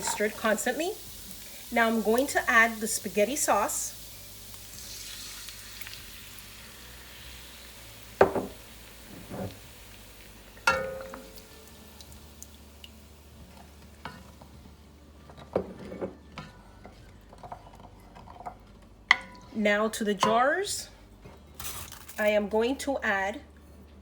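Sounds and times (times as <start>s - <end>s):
oil sizzling in a pot: 0.0s - 15.8s
jar and spoon knocking on pot: 8.2s - 8.6s.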